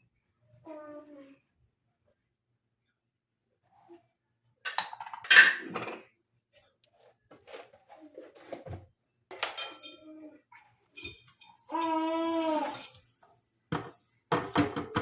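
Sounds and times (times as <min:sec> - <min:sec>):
dishes and cutlery clattering: 0:04.7 - 0:06.2, 0:09.3 - 0:10.3, 0:10.9 - 0:15.0.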